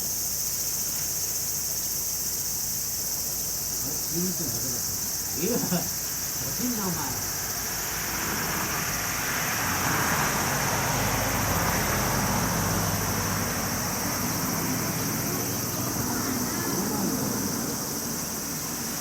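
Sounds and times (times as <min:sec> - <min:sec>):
crickets chirring: 0:00.0 - 0:19.0
passing motor vehicle engine: 0:05.4 - 0:19.0.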